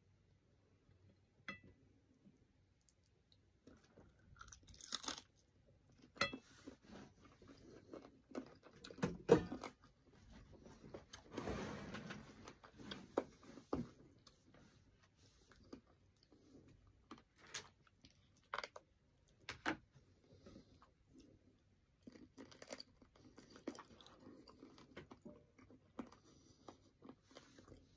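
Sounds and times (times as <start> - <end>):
chewing and crunching: 2.8 - 6.2, 7.2 - 9.0, 20.7 - 27.9.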